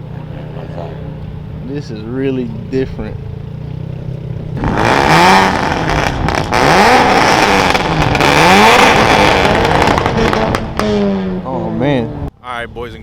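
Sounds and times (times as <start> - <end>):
car engine revving: 0.0 - 12.8
exhaust pops: 3.5 - 12.1.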